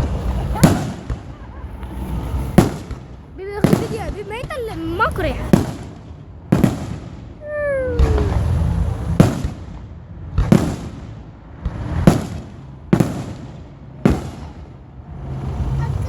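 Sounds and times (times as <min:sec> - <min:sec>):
fireworks bangs: 0:00.0 - 0:16.0
low rumble: 0:07.3 - 0:12.9.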